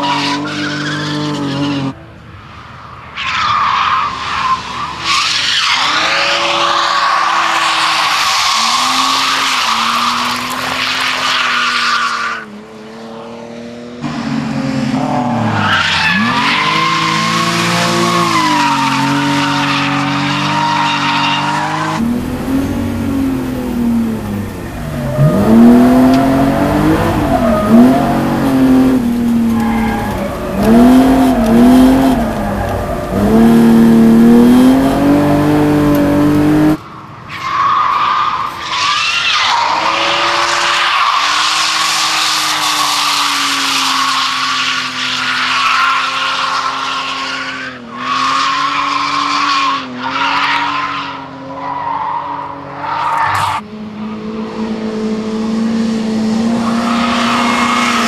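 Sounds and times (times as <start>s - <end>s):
car engine revving hard: 21.4s - 36.8s
tyres squealing: 24.4s - 36.7s.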